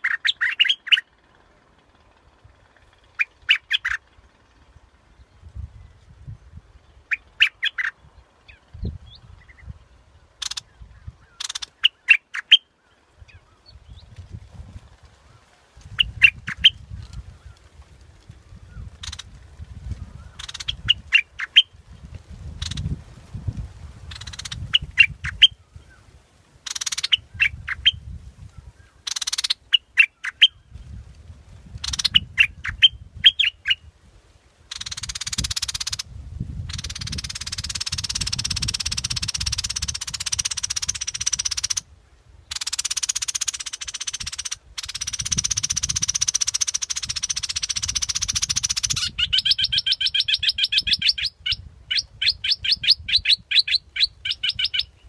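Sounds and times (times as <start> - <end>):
bulbul calling: 0.0 - 1.2, 2.5 - 4.3, 7.0 - 13.4, 15.9 - 16.9, 18.8 - 19.4, 20.2 - 21.8, 22.6 - 22.9, 24.1 - 26.0, 26.6 - 28.1, 28.8 - 30.6, 31.8 - 33.9, 34.7 - 41.9, 42.5 - 55.0
dense high bird chatter: 0.0 - 5.7, 6.5 - 14.1, 15.4 - 17.8, 18.8 - 19.4, 20.1 - 21.8, 22.5 - 23.0, 24.1 - 30.7, 31.8 - 33.8, 34.7 - 36.1, 36.7 - 41.8, 42.5 - 55.0.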